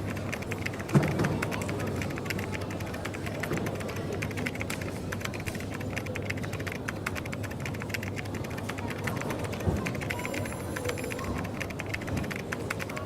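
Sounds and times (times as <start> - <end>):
cafe background hum: 0.0 - 13.0
keyboard typing: 0.0 - 13.0.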